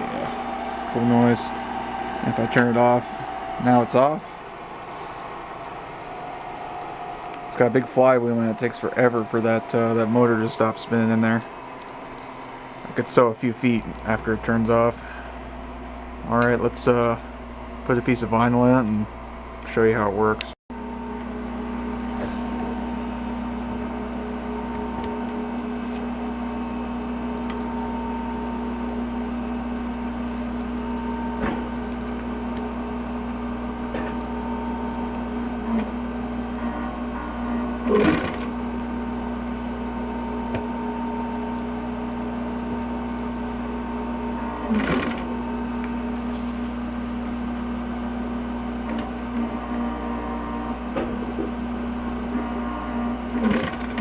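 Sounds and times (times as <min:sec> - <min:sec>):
sewing machine running bursts: 0:00.0 - 0:05.2, 0:37.8 - 0:38.7, 0:44.2 - 0:45.6, 0:53.3 - 0:54.0
sewing machine motor humming: 0:00.0 - 0:12.6, 0:21.8 - 0:54.0.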